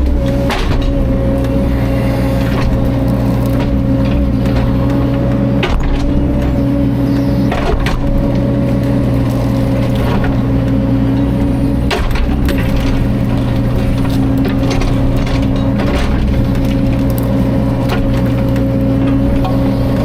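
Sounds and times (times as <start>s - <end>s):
sharp knocks and cracks: 0.0s - 6.7s, 7.4s - 19.6s
excavator diesel engine running: 0.0s - 20.0s.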